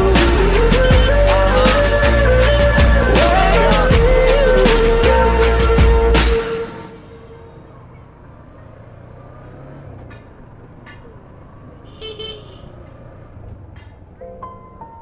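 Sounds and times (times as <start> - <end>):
music: 0.0 - 7.6, 13.8 - 15.0
road vehicle rumble: 0.0 - 15.0
vehicle horn toot: 0.8 - 1.4, 11.8 - 12.8.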